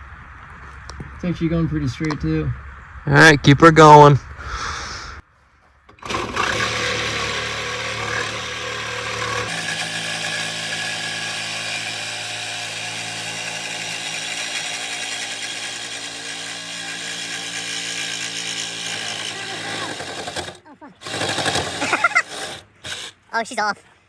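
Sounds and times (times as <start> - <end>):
power tool cutting steel pipe: 5.9 - 23.2.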